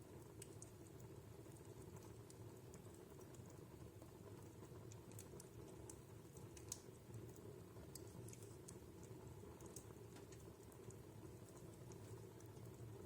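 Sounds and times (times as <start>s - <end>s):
burning logs crackling: 0.0s - 13.0s.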